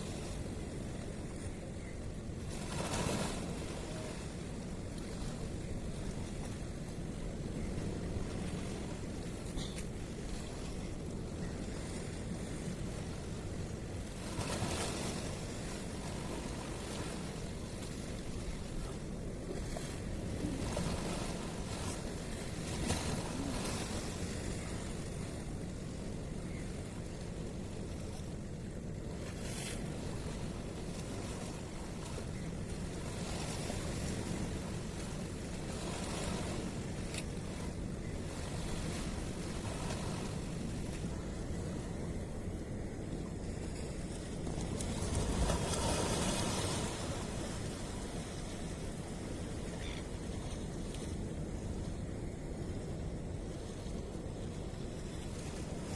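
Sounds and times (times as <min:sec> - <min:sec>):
water washing at harbour: 0:00.0 - 0:55.9
wind: 0:00.0 - 0:55.9
wave surging: 0:18.8 - 0:25.2.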